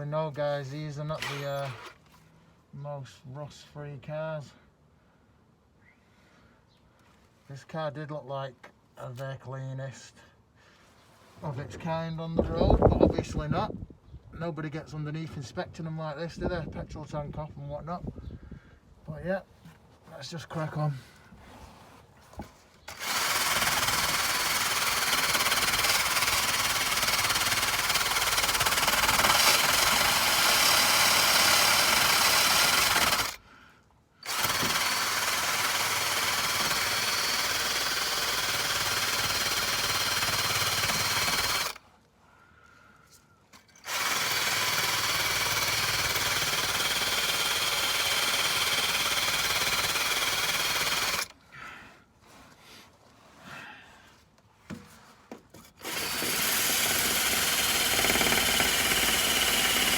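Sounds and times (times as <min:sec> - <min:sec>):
wire brush drill scouring metal: 0:01.1 - 0:02.1, 0:22.9 - 0:33.4, 0:34.2 - 0:41.8, 0:43.6 - 0:51.3, 0:55.8 - 0:59.9.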